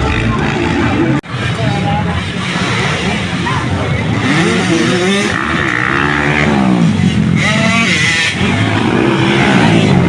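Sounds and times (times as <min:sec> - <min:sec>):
dirt bike engines revving: 0:00.0 - 0:10.0.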